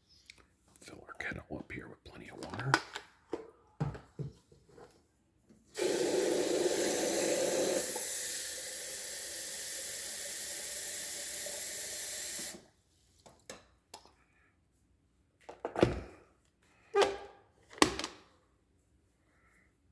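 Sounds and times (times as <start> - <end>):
tap water filling a kettle: 5.8 - 12.7.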